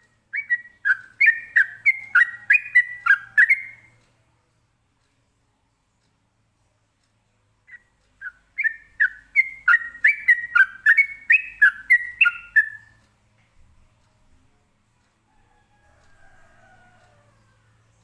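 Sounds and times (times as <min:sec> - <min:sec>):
bulbul singing whistled notes: 0:00.4 - 0:03.9, 0:07.7 - 0:12.9.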